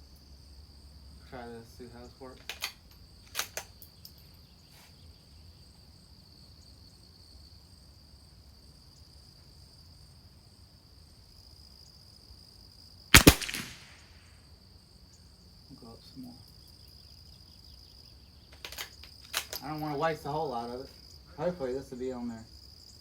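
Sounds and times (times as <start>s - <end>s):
crickets chirring: 0.0s - 23.0s
rifle shot with echo: 13.2s - 14.2s.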